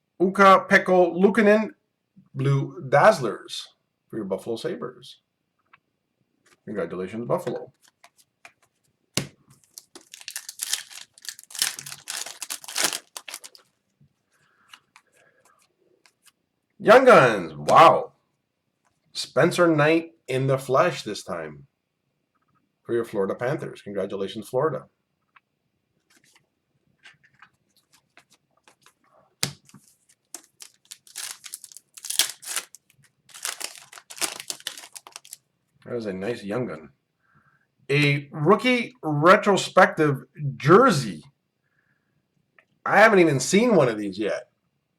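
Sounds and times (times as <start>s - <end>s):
foil wrapper crinkling and tearing: 9.6s - 13.7s, 29.6s - 35.4s
light handling ticks: 29.7s - 35.4s.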